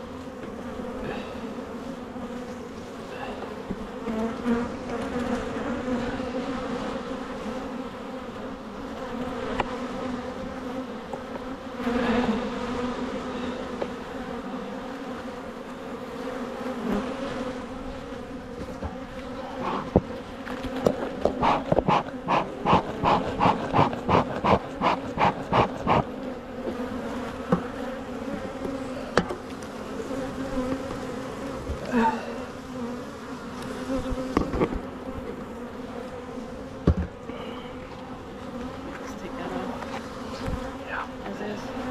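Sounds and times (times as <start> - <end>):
bees humming: 0.0 - 41.9
quick regular strokes: 21.3 - 26.1.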